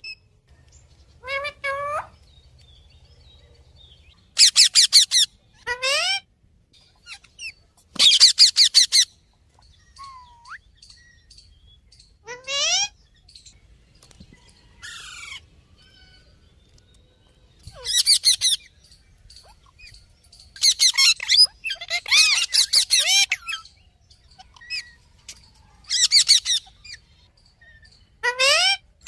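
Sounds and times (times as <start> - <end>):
parrot chattering and squawking: 1.2 - 2.2, 4.4 - 6.3, 7.0 - 9.1, 12.2 - 13.0, 17.7 - 18.7, 20.6 - 23.7, 24.3 - 25.0, 25.8 - 28.9
parrot squeal: 4.4 - 6.2, 12.3 - 13.0, 20.6 - 23.6, 25.9 - 27.0, 28.2 - 28.8.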